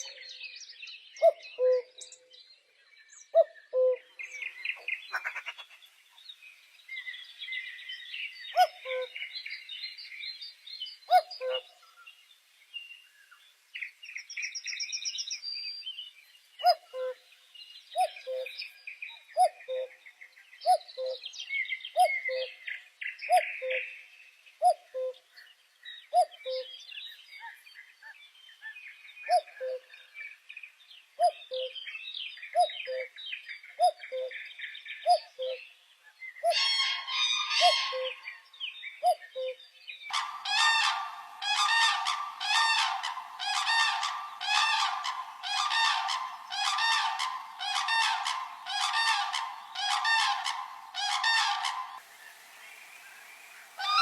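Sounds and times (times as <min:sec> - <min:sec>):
high trilling birdsong: 0:36.3 - 0:54.0
harsh bird call: 0:40.1 - 0:52.0, 0:52.9 - 0:54.0.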